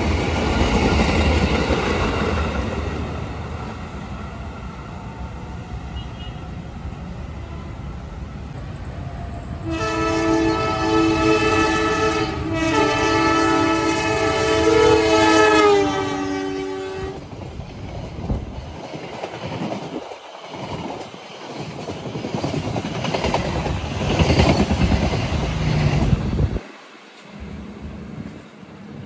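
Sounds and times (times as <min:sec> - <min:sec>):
train wheels clattering on rails: 0:00.0 - 0:03.9, 0:11.2 - 0:29.0
locomotive horn: 0:05.9 - 0:06.6, 0:09.4 - 0:17.2.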